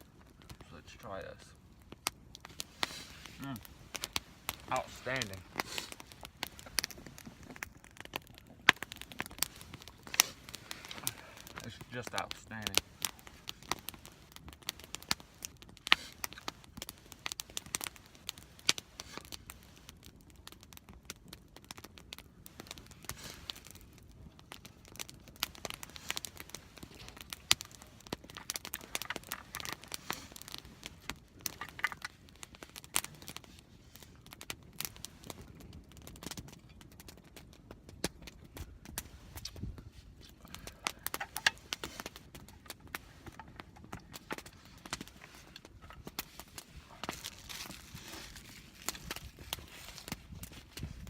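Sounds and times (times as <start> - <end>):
campfire crackling and popping: 0.0 - 51.0
soft rustling: 41.2 - 51.0.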